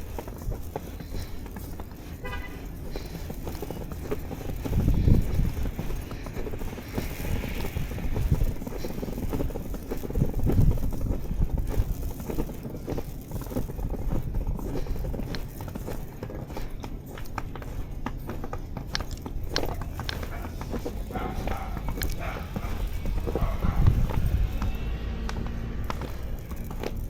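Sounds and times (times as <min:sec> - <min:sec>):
footsteps crunching through snow: 0:00.0 - 0:27.0
low rumble: 0:20.7 - 0:26.9.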